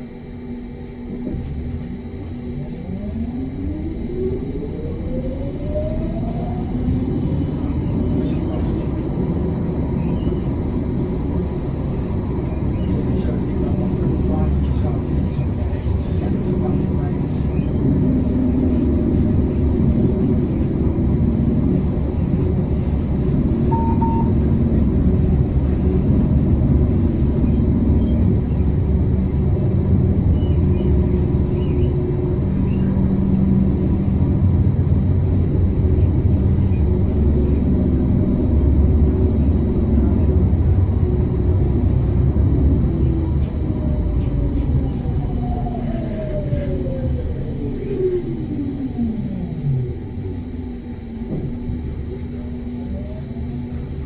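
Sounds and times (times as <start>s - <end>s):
tram wheels rumbling on rails: 0.0s - 54.0s
high beep: 23.7s - 24.4s.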